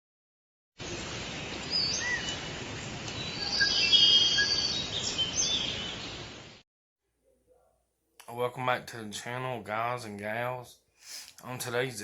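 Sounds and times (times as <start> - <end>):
birds chirping and whistling: 1.4 - 6.5.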